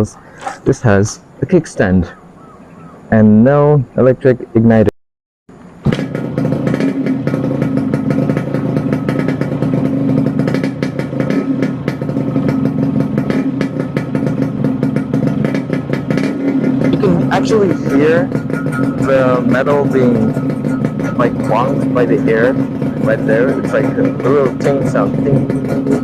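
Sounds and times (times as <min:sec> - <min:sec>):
two-stroke motorcycle engine idling: 0:05.6 - 0:26.0
metallic exhaust ting: 0:13.8 - 0:26.0.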